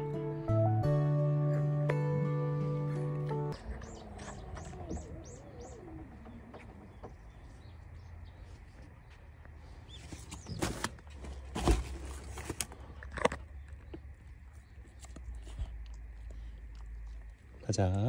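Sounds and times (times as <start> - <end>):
low wavering gliding call: 3.5 - 6.9
high bird chirps: 3.5 - 8.6.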